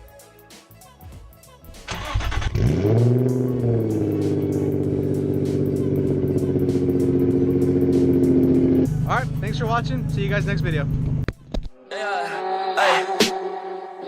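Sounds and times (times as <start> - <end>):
background music: 0.0 - 14.0
car engine starting and idling: 1.8 - 11.6.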